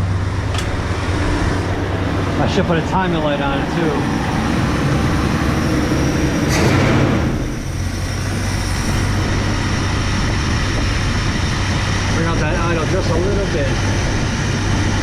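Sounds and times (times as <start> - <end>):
car engine idling: 0.0 - 6.4.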